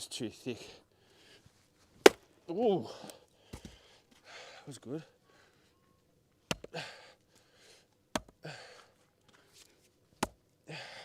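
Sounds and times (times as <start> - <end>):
heavy breathing: 0.6 - 1.6, 2.8 - 5.8, 6.7 - 9.8, 10.7 - 11.0
axe splitting log: 6.5 - 6.8, 8.1 - 8.4, 10.2 - 10.4.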